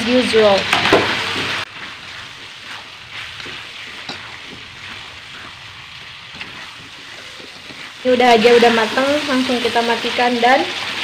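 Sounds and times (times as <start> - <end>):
chicken sizzling in a wok: 0.0 - 11.0
metal spatula scraping pan: 0.8 - 9.3.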